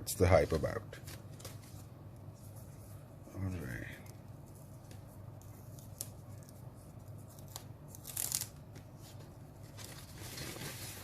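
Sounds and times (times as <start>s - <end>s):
rustling while unboxing: 8.1s - 11.0s.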